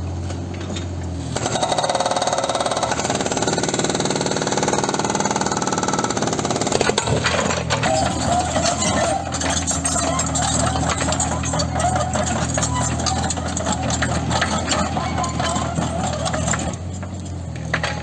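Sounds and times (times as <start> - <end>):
fast mechanical rattle: 4.6 - 18.0.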